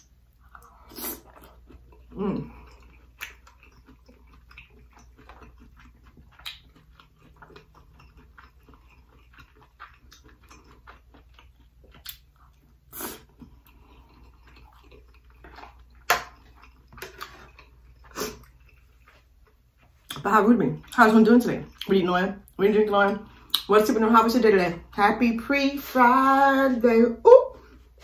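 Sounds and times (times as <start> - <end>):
close chewing: 0.4 - 20.2.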